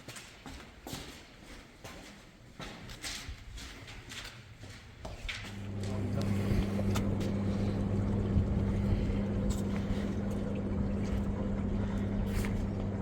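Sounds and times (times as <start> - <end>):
motor humming: 5.5 - 13.0.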